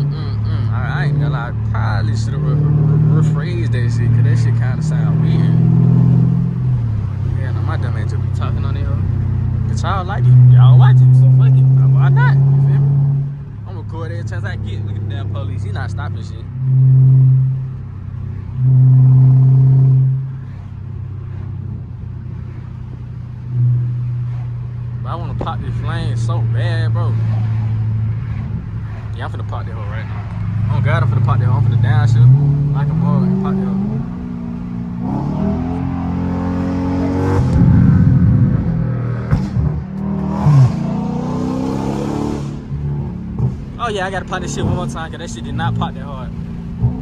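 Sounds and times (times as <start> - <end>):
car engine droning: 0.0 - 47.0
exhaust crackle: 0.0 - 47.0
sharp exhaust pops: 23.7 - 26.3, 37.4 - 41.0, 42.4 - 47.0.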